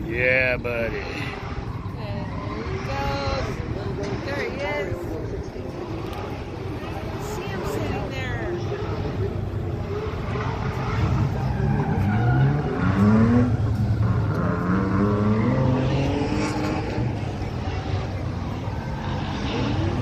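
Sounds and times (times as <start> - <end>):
car engines running: 0.0 - 20.0
engine revving up: 5.6 - 20.0.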